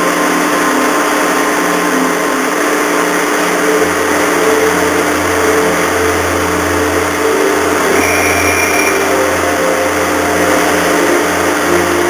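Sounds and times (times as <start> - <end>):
ferry engines humming: 3.5 - 12.0.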